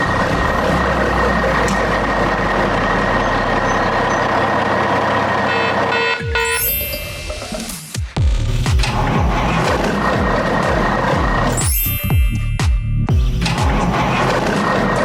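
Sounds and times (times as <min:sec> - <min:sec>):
heavy vehicle engine: 0:00.0 - 0:06.5, 0:08.4 - 0:11.6, 0:13.0 - 0:15.0
held tone: 0:05.5 - 0:08.0, 0:11.5 - 0:13.6.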